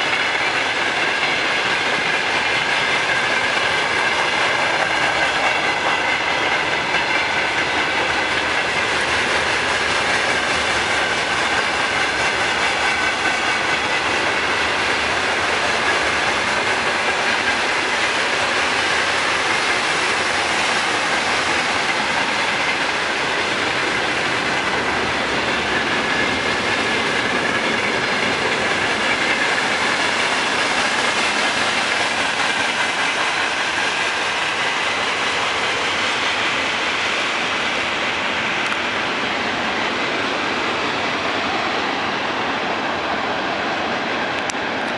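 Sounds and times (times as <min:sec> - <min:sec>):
freight train wheels clacking: 0:00.0 - 0:44.9.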